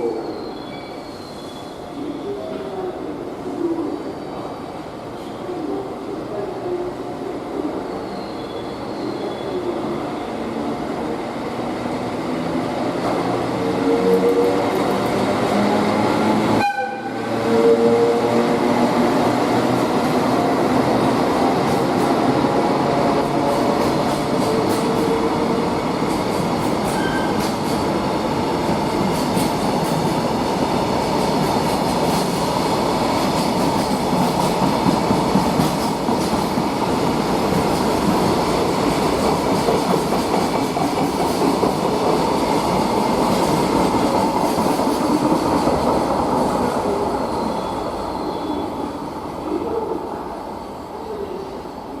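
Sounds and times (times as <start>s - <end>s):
faint wheel squeal: 0.2s - 2.4s, 7.9s - 9.6s, 47.2s - 48.8s
train wheels rumbling on rails: 9.9s - 48.6s.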